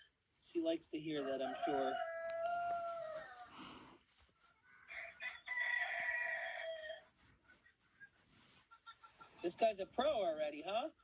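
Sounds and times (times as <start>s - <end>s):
rooster crowing: 1.2s - 3.9s, 4.6s - 7.1s.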